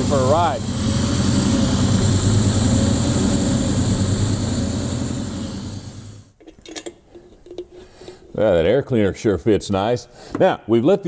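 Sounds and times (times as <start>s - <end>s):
car engine idling: 0.0s - 6.3s.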